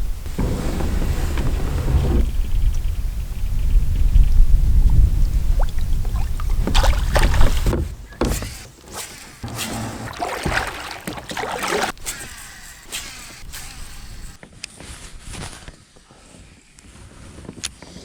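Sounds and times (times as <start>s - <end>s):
wind rumble on microphone: 0.0s - 8.2s
water splashing beside kayak: 4.6s - 14.4s.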